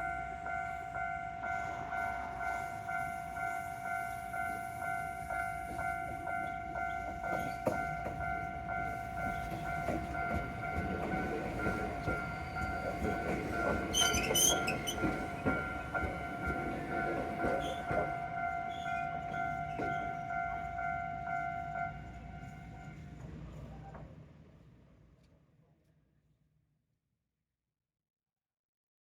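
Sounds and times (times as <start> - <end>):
crossing warning signal ringing: 0.0 - 23.0
train wheels clattering on rails: 4.0 - 24.2.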